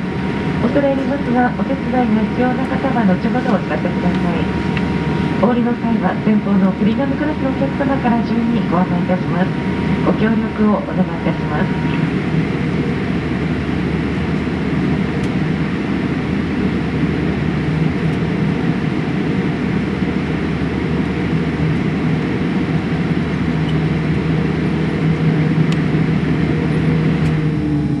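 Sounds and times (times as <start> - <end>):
airplane cabin engine hum: 0.0 - 28.0.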